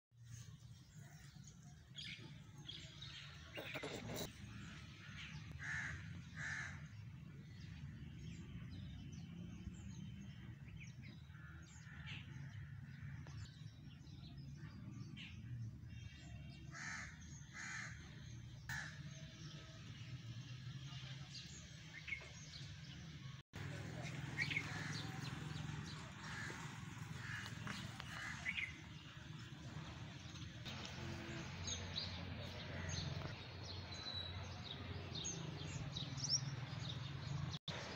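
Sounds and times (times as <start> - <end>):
harsh cawing calls: 5.6 - 6.8, 16.7 - 18.0, 18.7 - 19.0, 26.2 - 28.7.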